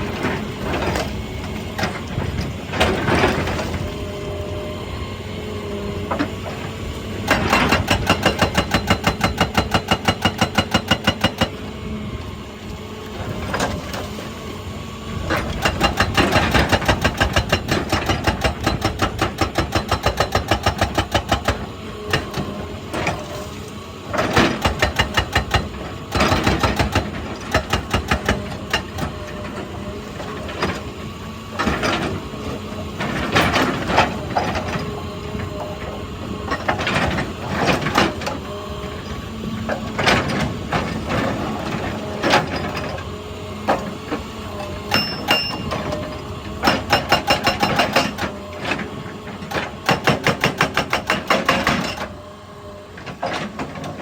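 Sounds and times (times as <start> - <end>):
excavator engine running: 0.0 - 54.0
hydraulic breaker hammering rock: 6.0 - 11.8, 15.2 - 23.4, 24.1 - 30.9, 43.6 - 52.2.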